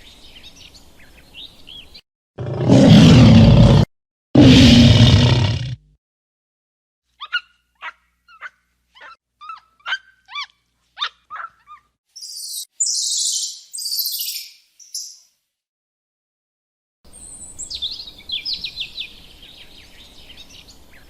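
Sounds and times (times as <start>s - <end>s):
small dog yapping: 7.2s - 11.9s.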